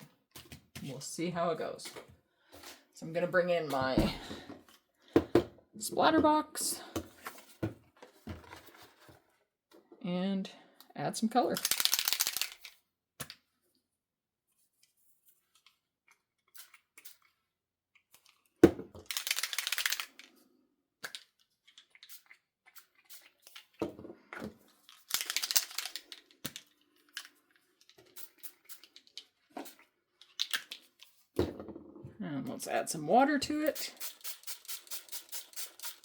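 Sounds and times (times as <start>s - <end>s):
spray bottle hissing: 33.8s - 36.0s.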